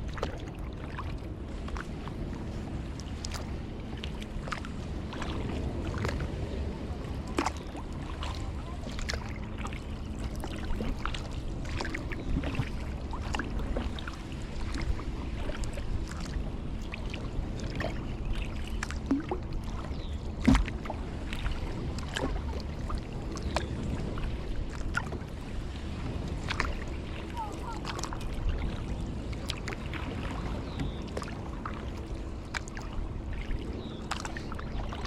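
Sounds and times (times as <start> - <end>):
paddle splashing in water: 0.0 - 35.0
paddle knocking on hull: 20.4 - 25.3.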